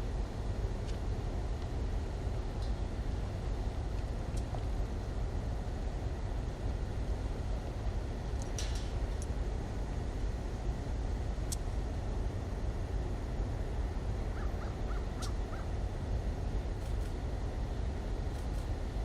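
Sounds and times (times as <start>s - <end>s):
steady low rumble: 0.0s - 19.0s
bird calling: 14.3s - 15.7s.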